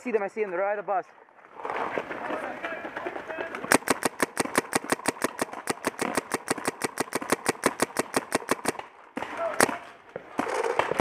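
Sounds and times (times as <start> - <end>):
paintball marker firing rapidly: 3.4 - 11.0.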